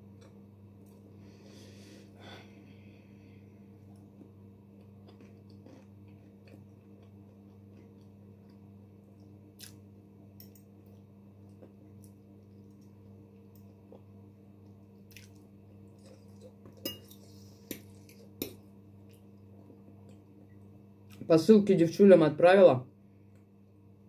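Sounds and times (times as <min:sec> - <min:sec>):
steady low hum: 0:00.0 - 0:24.0
person chewing with clicks: 0:04.0 - 0:08.6, 0:09.2 - 0:09.8, 0:10.4 - 0:17.2.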